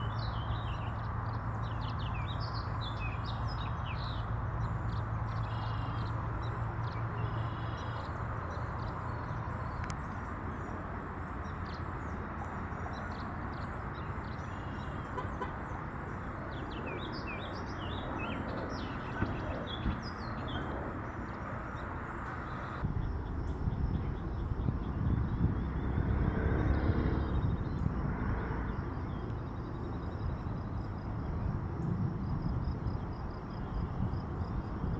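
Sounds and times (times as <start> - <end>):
small birds chirping: 0.0 - 34.9
low outdoor rumble: 15.2 - 34.9.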